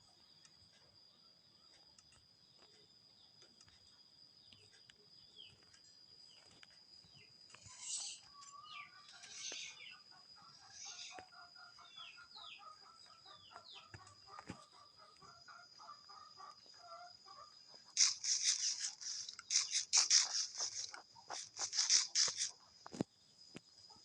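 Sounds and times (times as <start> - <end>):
bird chirps: 0.0 - 24.0
chicken clucking: 7.7 - 22.5.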